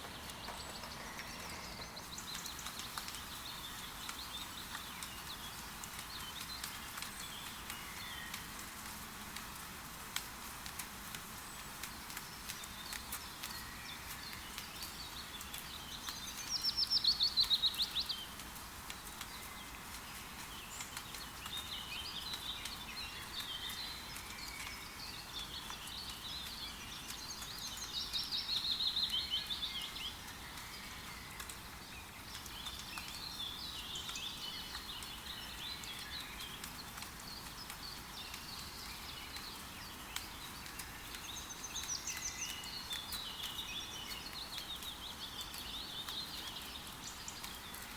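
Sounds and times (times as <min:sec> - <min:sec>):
birds chirping and warbling: 0:00.0 - 0:08.5
rain falling in a forest: 0:00.0 - 0:47.9.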